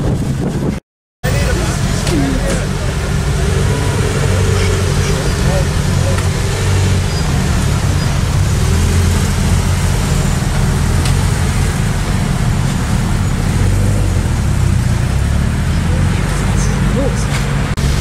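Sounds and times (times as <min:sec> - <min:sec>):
car engines idling: 0:01.2 - 0:18.0.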